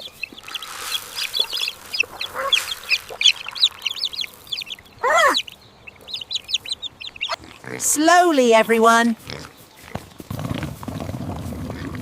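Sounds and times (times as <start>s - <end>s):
loud rising and falling call: 0.0s - 7.4s
chicks peeping: 0.0s - 7.8s
hens clucking: 0.0s - 12.0s.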